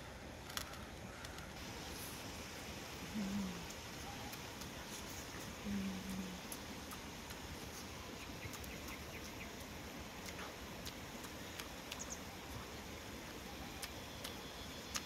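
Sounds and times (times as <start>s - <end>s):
faint outdoor hiss: 0.0s - 15.0s
person chewing and lip-smacking: 13.8s - 15.0s.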